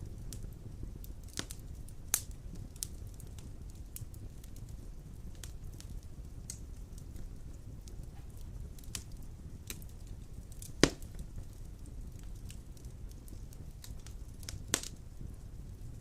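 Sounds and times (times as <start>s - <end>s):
fire crackling: 0.0s - 16.0s
fire low rumble: 0.0s - 16.0s
loud pop from fire: 1.2s - 3.4s, 7.9s - 11.5s, 12.2s - 15.0s.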